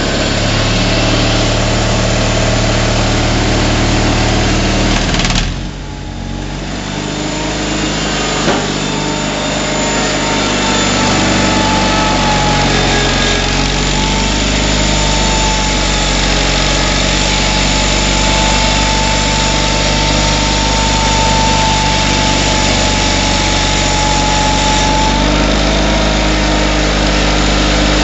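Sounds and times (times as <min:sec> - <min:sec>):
garden tractor engine running: 0:00.0 - 0:28.0
faint high whine: 0:07.2 - 0:25.3.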